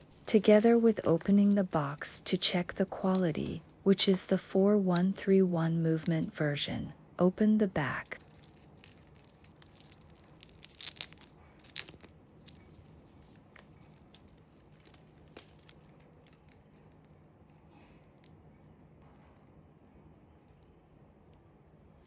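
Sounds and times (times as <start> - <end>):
packaging clicks and crinkles: 0.0 - 2.2, 8.0 - 20.7.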